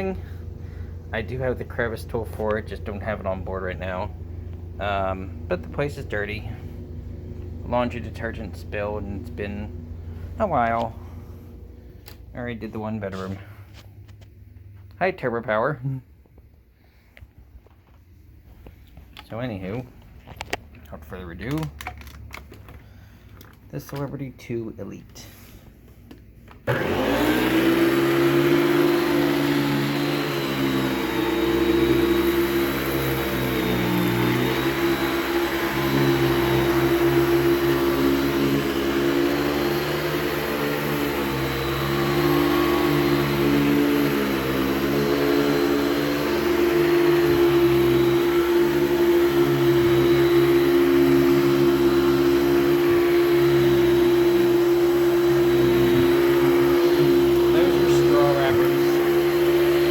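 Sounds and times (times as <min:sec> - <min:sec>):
vacuum cleaner running: 0:00.0 - 0:14.2, 0:26.5 - 0:59.9.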